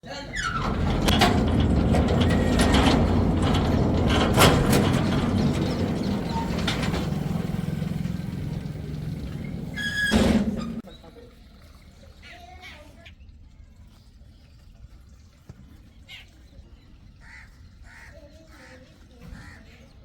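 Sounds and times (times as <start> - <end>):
low mechanical rumble: 0.0 - 10.8
clicks and rattles: 0.2 - 10.8.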